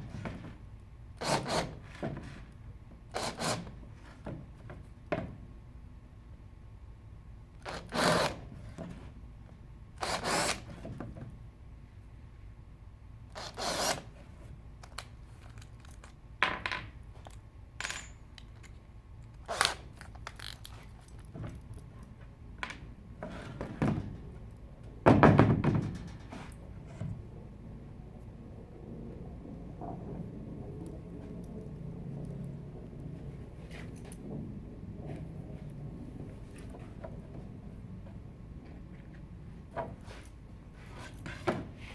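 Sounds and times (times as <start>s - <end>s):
objects knocking and clattering: 25.0s - 26.6s.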